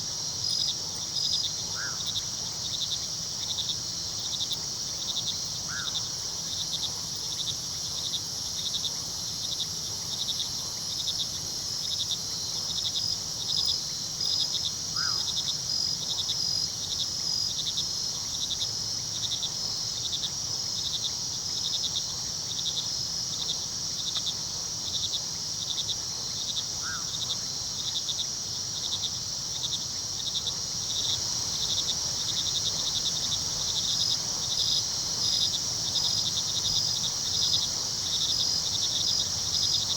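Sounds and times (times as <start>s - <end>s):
crickets chirping: 0.0s - 39.9s
high insect trill: 25.0s - 39.9s.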